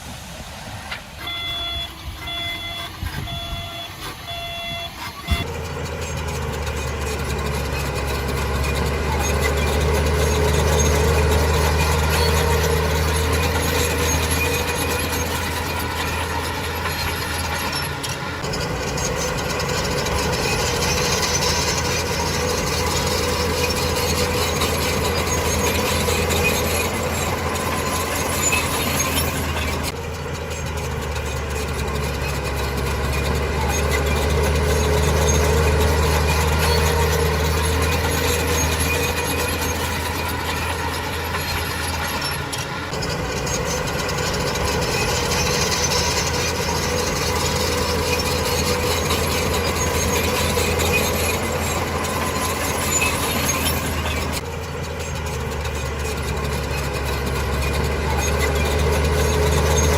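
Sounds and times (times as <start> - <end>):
heavy diesel machine drone: 0.0 - 59.9
high metallic squealing: 1.2 - 59.9.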